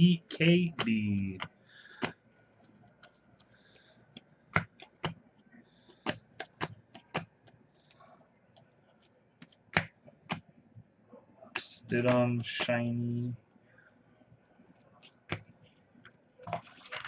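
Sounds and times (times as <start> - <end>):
trading cards clicking and snapping: 0.7 - 7.6, 9.0 - 10.4, 11.6 - 13.4.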